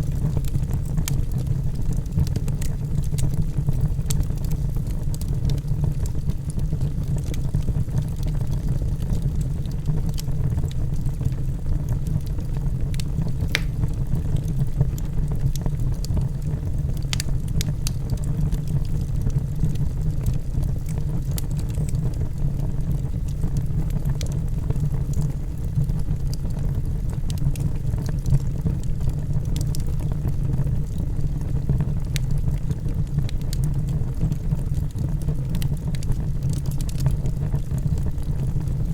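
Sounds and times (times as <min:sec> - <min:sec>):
wood fire burning in fireplace: 0:00.0 - 0:38.9.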